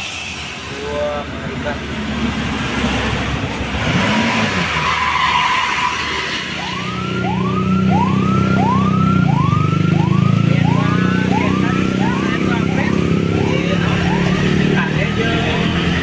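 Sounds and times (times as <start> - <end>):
heavy vehicle engine running: 0.0 - 5.0, 6.6 - 16.0
electronic siren whoop: 4.8 - 14.8.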